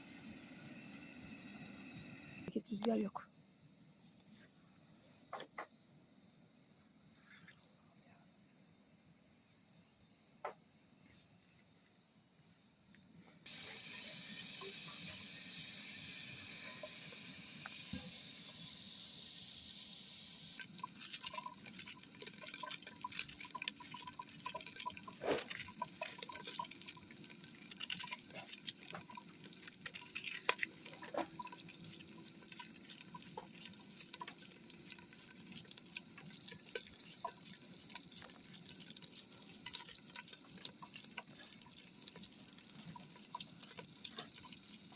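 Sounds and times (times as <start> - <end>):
water running from a tap: 13.5 - 44.9
water splashing and dripping: 20.5 - 44.9.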